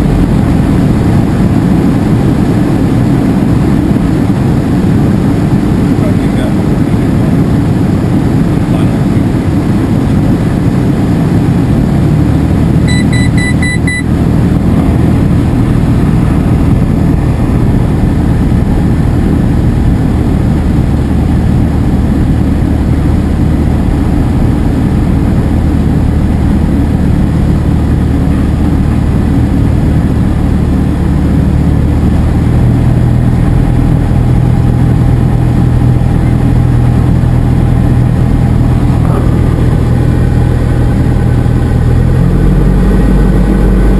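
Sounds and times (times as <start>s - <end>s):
propeller plane engine running: 0.0s - 43.9s
pulsed beeping tone: 12.9s - 14.1s.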